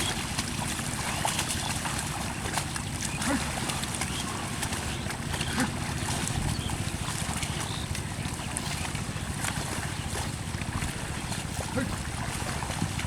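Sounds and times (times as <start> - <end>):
water and mud splashing: 0.0 - 13.0
wind buffeting microphone: 4.3 - 13.0.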